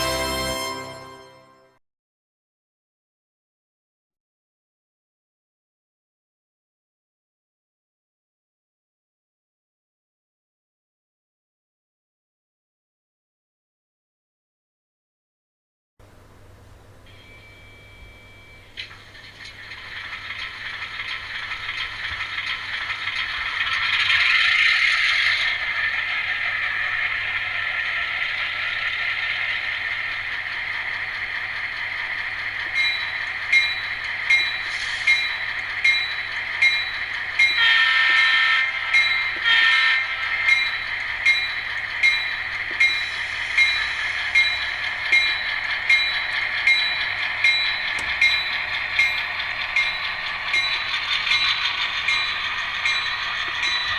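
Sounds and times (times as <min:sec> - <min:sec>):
train horn blasts: 0:00.0 - 0:01.7
wheels clicking over rail joints: 0:18.8 - 0:53.9.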